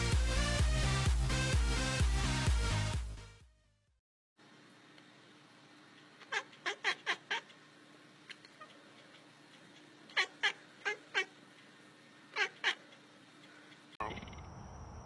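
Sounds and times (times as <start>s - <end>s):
cat meowing: 6.2s - 7.6s, 10.1s - 11.4s, 12.3s - 12.8s.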